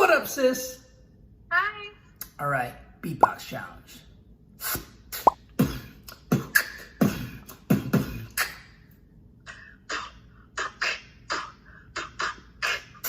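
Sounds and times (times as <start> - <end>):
person beatboxing: 4.6 - 8.7, 9.5 - 13.0.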